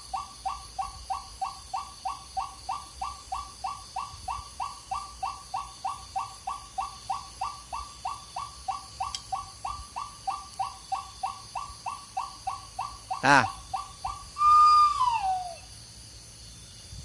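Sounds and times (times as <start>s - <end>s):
bird call imitated by mouth: 4.9s - 15.6s.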